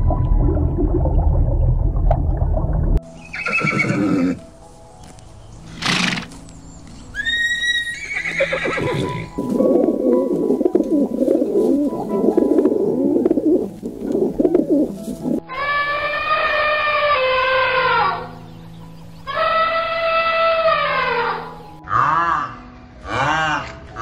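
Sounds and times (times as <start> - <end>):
dense warbling: 0.0 - 3.0.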